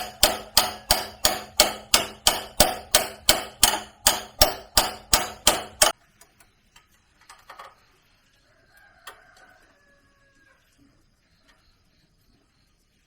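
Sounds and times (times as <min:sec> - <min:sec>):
hammer clanging on metal: 0:00.0 - 0:06.0.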